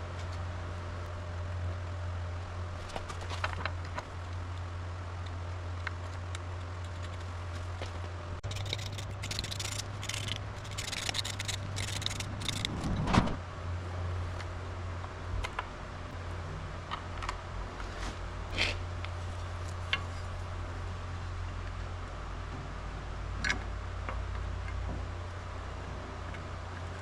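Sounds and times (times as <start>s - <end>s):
steady low hum: 0.0s - 27.0s
metal tools clinking and scraping: 8.4s - 12.8s.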